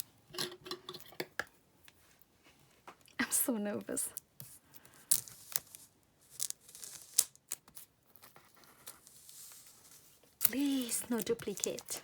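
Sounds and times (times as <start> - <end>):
plastic wrapping tearing and crinkling: 5.0 - 7.9, 8.9 - 12.0.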